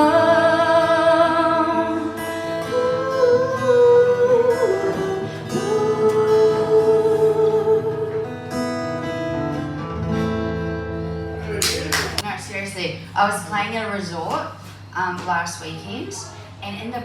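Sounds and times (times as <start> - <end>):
acoustic guitar strumming chords: 0.0 - 12.2.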